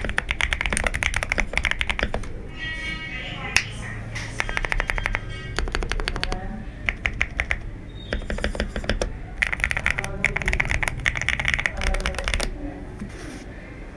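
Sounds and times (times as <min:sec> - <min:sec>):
mechanical keyboard key clacks: 0:00.0 - 0:02.3, 0:04.4 - 0:12.5.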